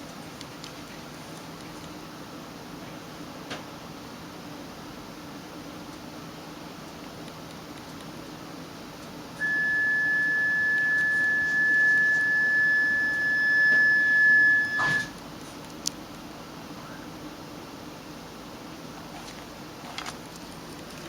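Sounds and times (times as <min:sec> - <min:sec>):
high electronic beep tone: 0:09.4 - 0:15.1
train carriage hum: 0:09.4 - 0:15.4.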